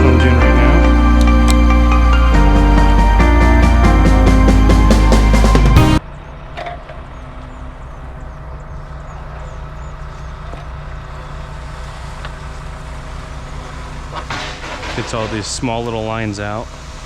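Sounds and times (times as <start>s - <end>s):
music: 0.0s - 6.0s
engine humming: 0.0s - 17.0s.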